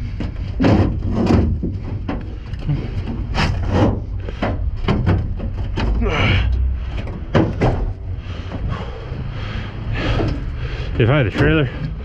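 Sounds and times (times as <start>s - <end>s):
scrap metal knocking and scraping: 0.0s - 9.2s
low rumble: 0.0s - 12.0s.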